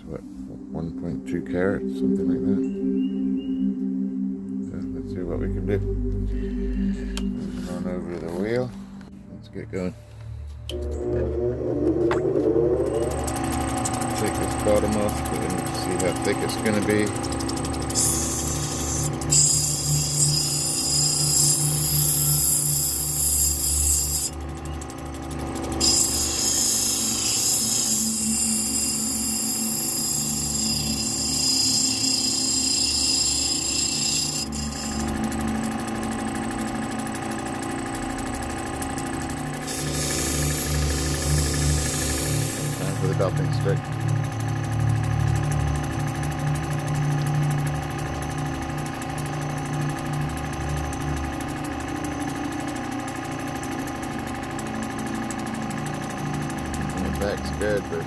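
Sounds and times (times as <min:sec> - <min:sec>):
grinding wheel motor hum: 0:00.0 - 0:58.0
high grinding hiss: 0:12.7 - 0:24.4, 0:25.4 - 0:37.9, 0:38.9 - 0:48.2.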